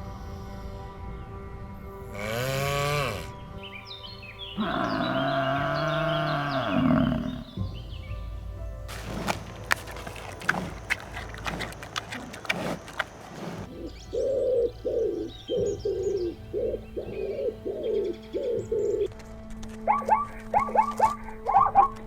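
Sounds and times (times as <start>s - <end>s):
bird cooing: 4.6s - 7.6s, 8.9s - 19.1s
rustling: 8.9s - 13.8s.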